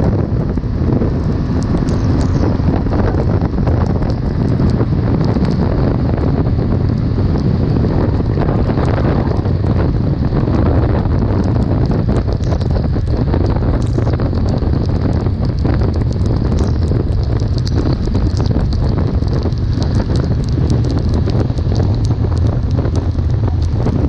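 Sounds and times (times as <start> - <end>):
wind noise on microphone: 0.0 - 24.0
small ticks: 1.6 - 2.5, 11.4 - 24.0.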